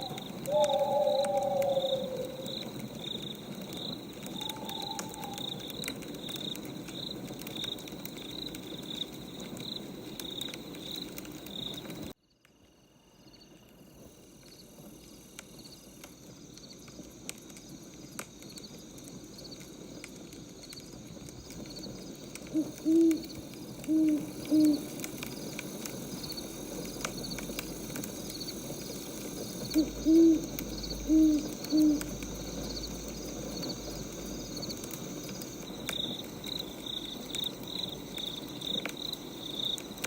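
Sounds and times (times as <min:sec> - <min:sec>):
low hoots: 0:00.0 - 0:03.0, 0:04.2 - 0:05.9, 0:22.5 - 0:25.1, 0:29.6 - 0:32.7
crackling wood fire: 0:00.0 - 0:12.8, 0:13.4 - 0:40.0
crickets chirping: 0:00.0 - 0:40.0.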